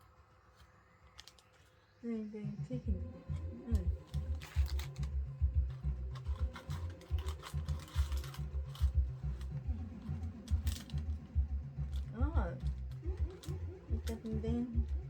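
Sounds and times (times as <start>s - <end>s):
packaging rustle: 1.0s - 1.8s, 3.8s - 14.4s
plastic pieces clicking: 3.8s - 15.0s.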